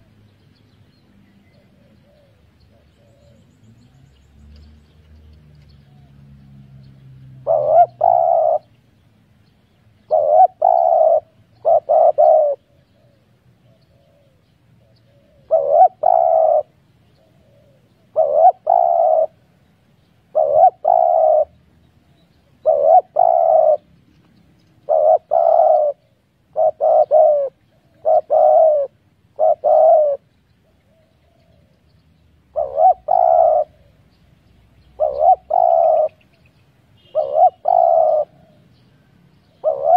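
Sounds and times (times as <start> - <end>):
dove cooing: 1.4 - 3.6, 7.4 - 8.7, 10.0 - 19.6, 20.3 - 24.0, 24.8 - 31.9, 32.5 - 34.2, 34.8 - 39.9.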